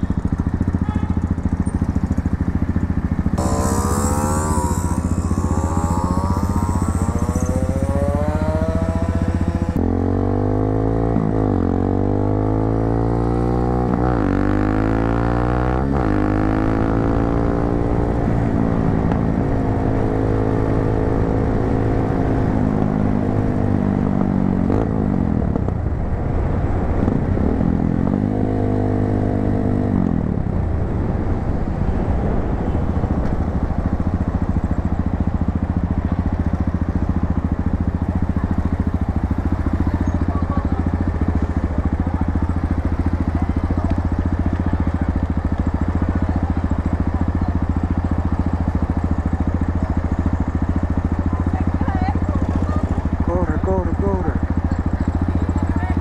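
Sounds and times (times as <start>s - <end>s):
motorcycle accelerating through gears: 0.0s - 56.0s.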